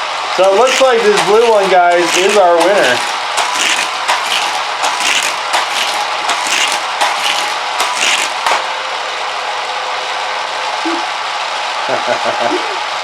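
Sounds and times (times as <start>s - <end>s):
toy car rattling along plastic track: 0.0s - 8.6s
toy track boosters whirring: 0.0s - 8.7s.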